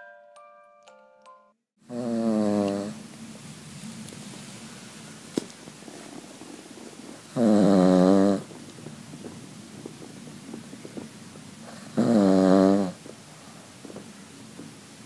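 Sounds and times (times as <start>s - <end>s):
dog snoring loudly: 1.9s - 3.1s, 5.6s - 14.6s.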